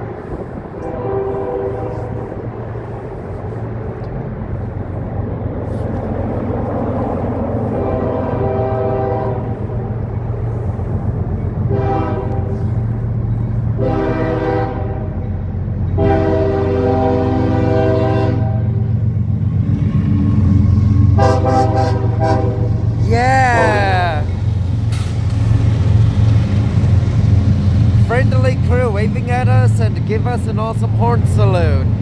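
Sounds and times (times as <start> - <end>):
passing locomotives rumbling: 0.0 - 32.0
locomotive air horn blasts: 0.8 - 2.5, 7.7 - 10.0, 11.6 - 12.9, 13.7 - 15.2, 15.9 - 18.8, 21.0 - 24.4.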